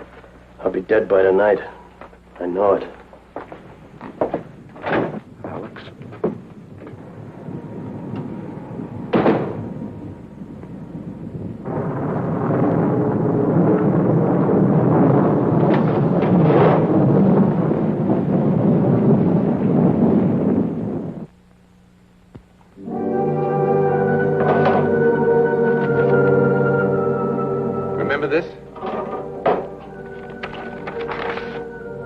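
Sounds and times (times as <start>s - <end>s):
thunder crack: 4.2s - 21.3s, 22.8s - 32.0s
heavy thunder rumble: 4.6s - 21.3s, 23.6s - 32.0s.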